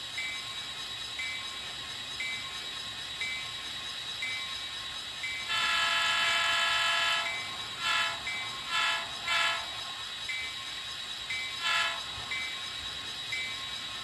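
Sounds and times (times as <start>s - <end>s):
model train diesel horn: 5.5s - 9.8s, 11.6s - 12.2s.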